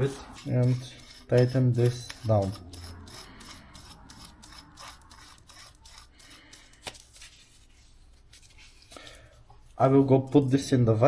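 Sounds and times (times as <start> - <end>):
metal rasping on metal: 0.0 - 6.7.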